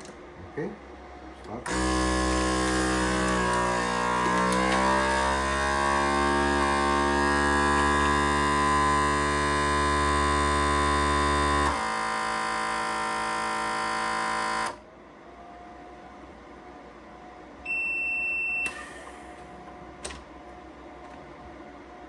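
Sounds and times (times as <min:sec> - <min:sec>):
vacuum pump humming: 0:01.5 - 0:14.8.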